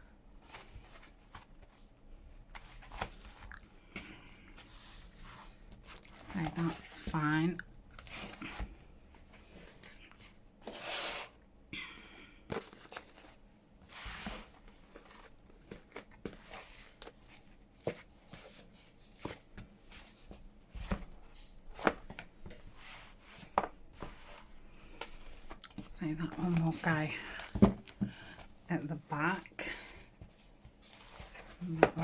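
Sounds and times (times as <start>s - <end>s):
paper rustling: 12.5s - 28.5s, 29.8s - 32.0s.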